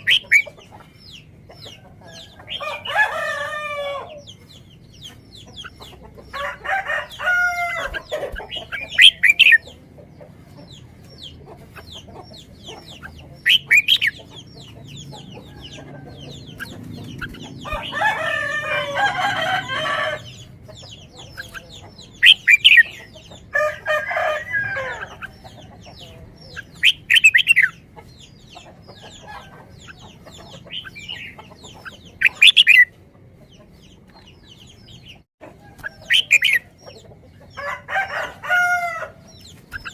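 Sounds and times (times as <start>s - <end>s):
chickens calling: 0.0s - 39.9s
rooster crowing: 2.0s - 4.3s, 6.3s - 8.1s, 17.6s - 20.4s, 23.5s - 25.1s, 37.6s - 39.2s.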